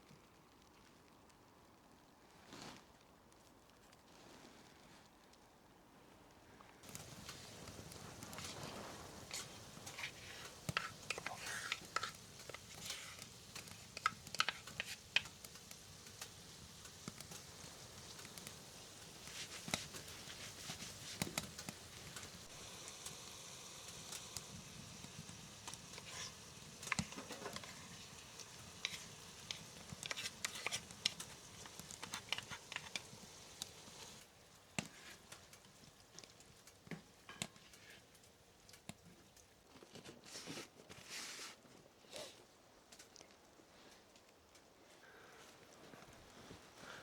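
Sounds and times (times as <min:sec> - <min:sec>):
faint hiss: 0:00.0 - 0:47.0
soft taps and light crackles: 0:06.6 - 0:22.6, 0:23.9 - 0:41.1.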